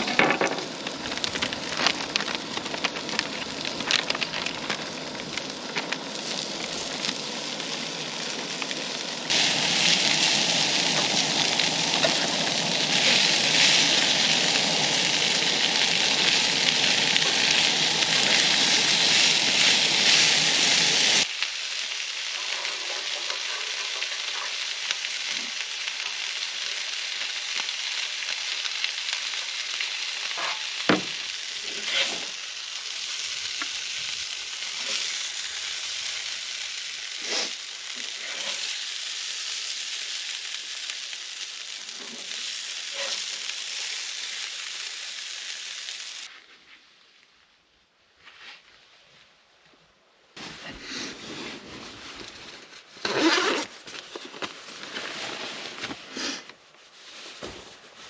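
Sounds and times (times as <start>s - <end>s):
food sizzling in a pan: 0.0s - 46.3s.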